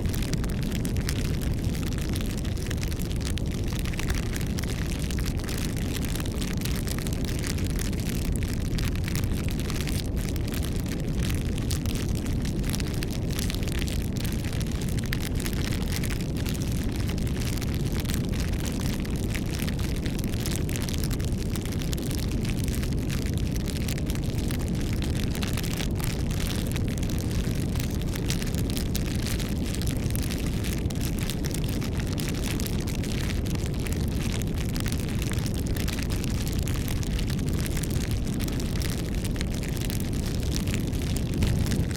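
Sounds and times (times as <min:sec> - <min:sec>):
campfire flames rumbling: 0:00.0 - 0:41.9
fire crackling and popping: 0:00.0 - 0:41.9.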